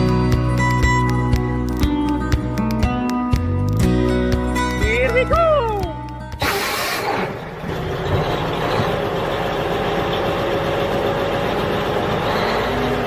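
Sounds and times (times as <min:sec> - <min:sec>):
vehicle engine running steadily: 0:07.0 - 0:13.0.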